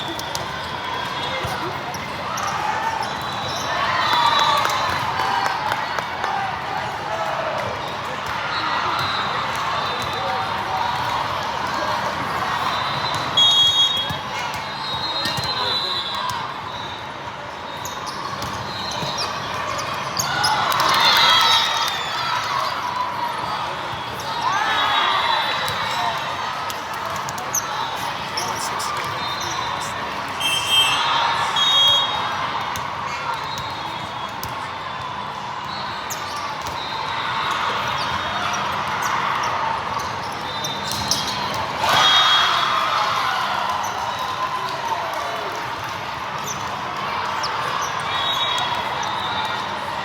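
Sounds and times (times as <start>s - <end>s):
hum of crowd voices: 0.0s - 50.0s
shoe squeaks: 27.3s - 32.1s, 40.3s - 41.6s.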